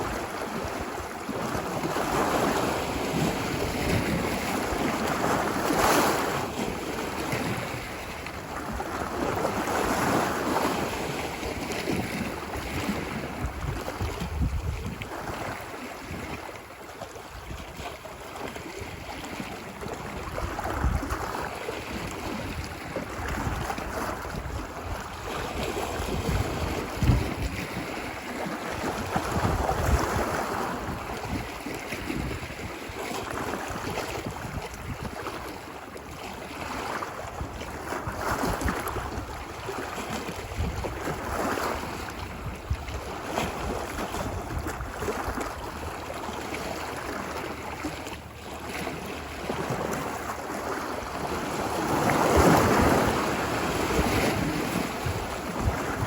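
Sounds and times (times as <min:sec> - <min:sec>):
wind rumbling on microphone: 0:00.0 - 0:16.6, 0:17.2 - 0:56.0
ocean surf washing ashore: 0:00.0 - 0:56.0.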